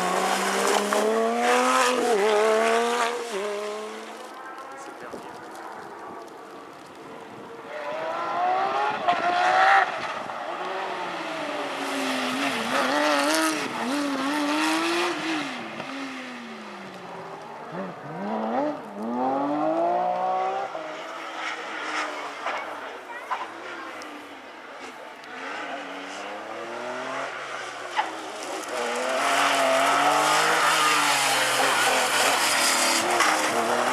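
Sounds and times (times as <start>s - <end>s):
rally car engine revving hard: 0.0s - 4.2s, 7.8s - 16.3s, 17.7s - 21.0s, 25.3s - 33.9s.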